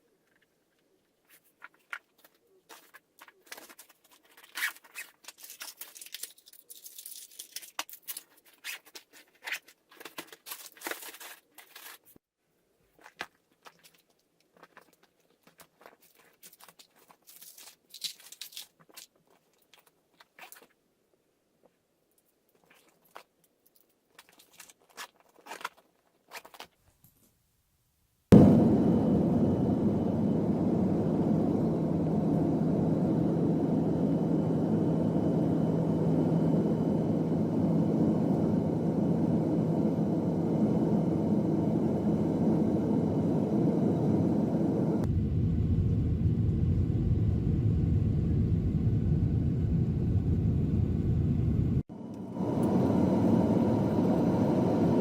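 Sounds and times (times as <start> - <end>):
faint clicks and rustles: 0.0 - 12.2, 12.8 - 20.9
vehicle rumble from inside: 45.0 - 51.8.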